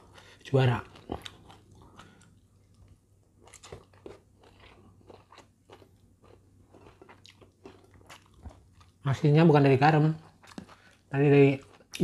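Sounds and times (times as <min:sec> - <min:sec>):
person chewing food: 0:00.0 - 0:09.0, 0:10.2 - 0:12.0.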